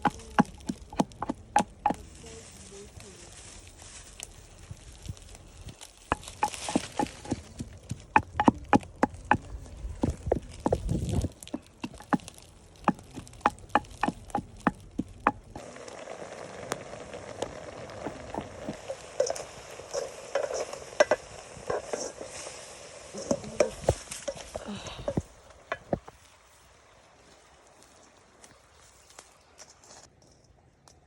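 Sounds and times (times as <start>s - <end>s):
food sizzling in a pan: 15.1s - 25.2s.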